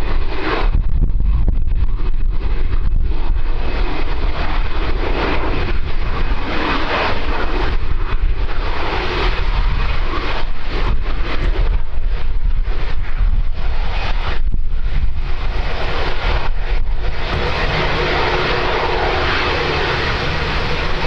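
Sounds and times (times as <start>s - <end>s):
aircraft engines running: 0.0s - 21.0s
wind buffeting microphone: 0.0s - 21.0s.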